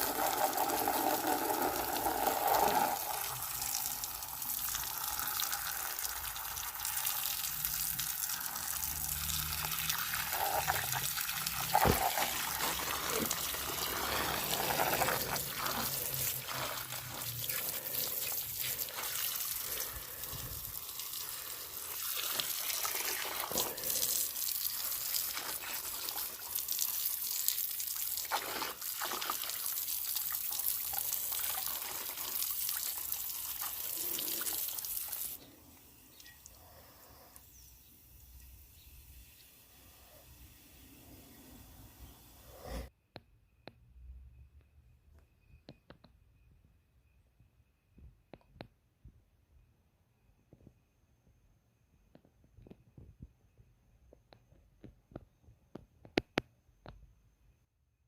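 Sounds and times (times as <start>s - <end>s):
water running from a tap: 0.0s - 35.4s.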